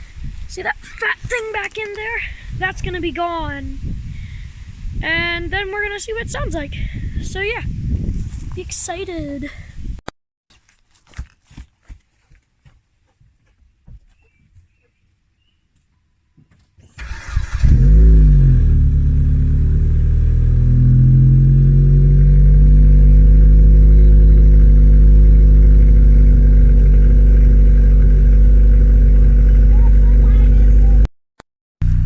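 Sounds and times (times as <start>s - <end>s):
car engine starting and idling: 16.8s - 31.1s.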